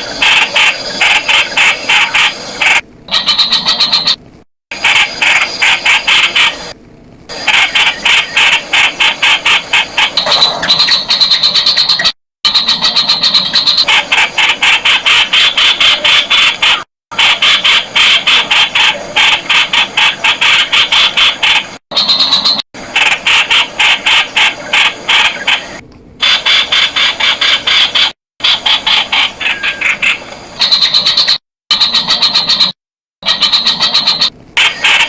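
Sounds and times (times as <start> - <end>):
bird calling sharp notes: 3.1 - 4.2, 7.4 - 16.9, 23.6 - 35.0.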